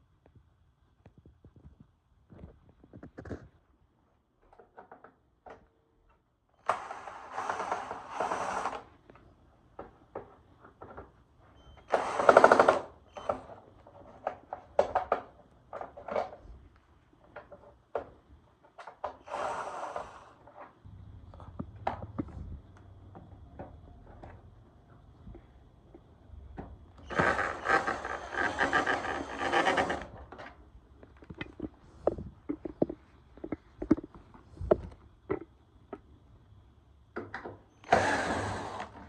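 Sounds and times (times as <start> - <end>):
sharp clicks and knocks: 28.4 - 36.1.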